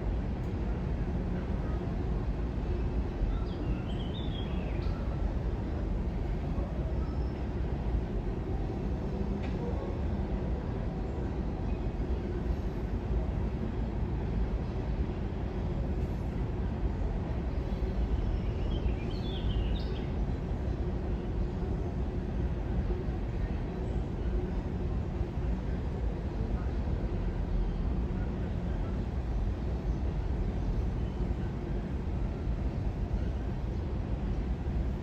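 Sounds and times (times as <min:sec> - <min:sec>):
train rumbling: 0:19.6 - 0:35.0.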